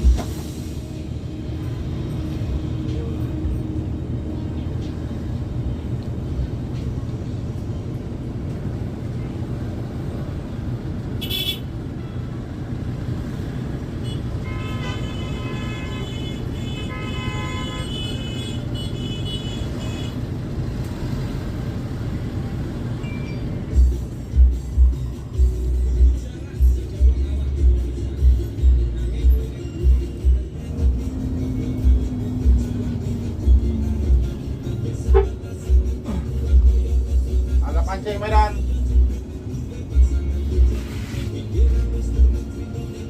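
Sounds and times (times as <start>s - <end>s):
bus engine rumble: 0.0s - 43.0s
road noise: 0.0s - 43.0s
vehicle horn tooting: 11.2s - 12.2s, 14.0s - 20.2s, 35.0s - 35.4s
short high beep: 23.0s - 23.6s.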